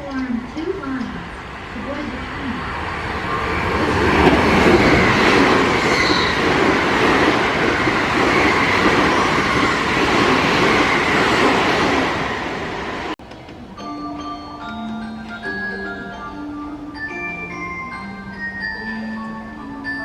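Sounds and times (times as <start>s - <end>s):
train wheels on rails: 0.0s - 13.6s.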